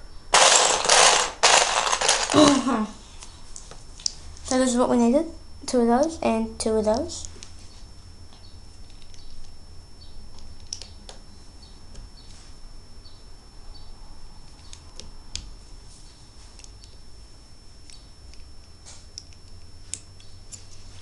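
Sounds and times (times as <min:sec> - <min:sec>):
plastic bricks clicking together: 0:00.4 - 0:02.6.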